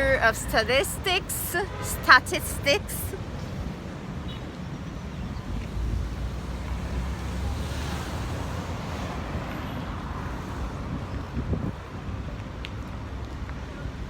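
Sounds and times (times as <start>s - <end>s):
street traffic noise: 0.0s - 14.0s
wind rumbling on microphone: 3.2s - 14.0s
passing vehicle hiss: 5.6s - 11.7s.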